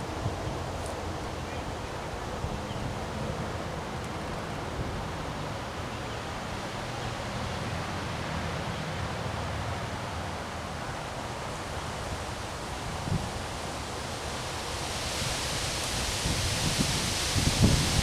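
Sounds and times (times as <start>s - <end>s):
strong wind blowing: 15.2s - 18.0s.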